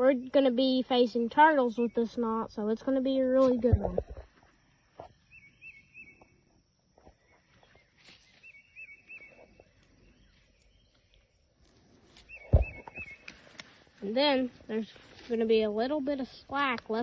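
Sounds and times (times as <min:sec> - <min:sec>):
insects chirping: 0:00.0 - 0:17.0
loud thump: 0:12.5 - 0:13.0.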